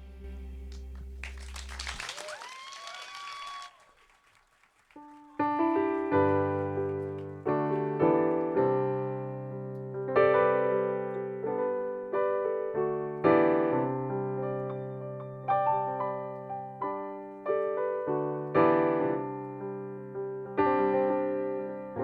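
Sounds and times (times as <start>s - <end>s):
slow piano chords: 5.3s - 22.0s.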